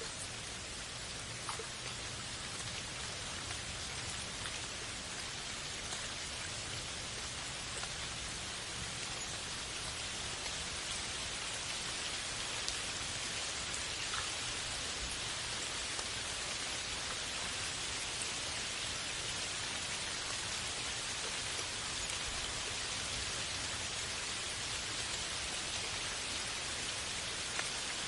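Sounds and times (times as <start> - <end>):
steady rain hiss: 0.0 - 28.0.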